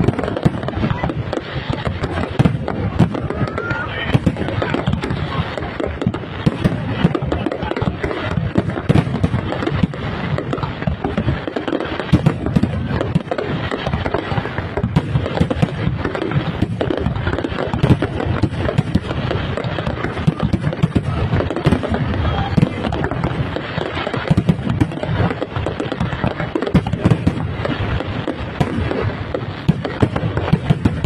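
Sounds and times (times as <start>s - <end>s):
fireworks bursting: 0.0s - 31.0s.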